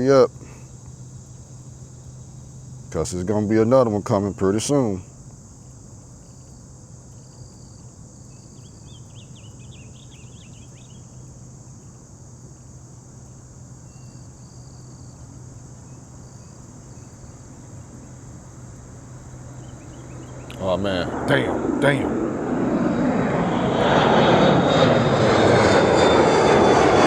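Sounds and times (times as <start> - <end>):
crickets chirping: 0.0 - 27.0
low hum: 16.8 - 27.0.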